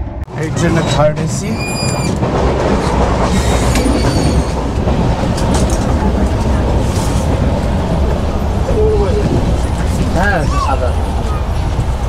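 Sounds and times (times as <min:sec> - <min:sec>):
moving train rumbling: 0:00.0 - 0:12.0
brief high squeal: 0:01.6 - 0:02.2, 0:03.4 - 0:04.6.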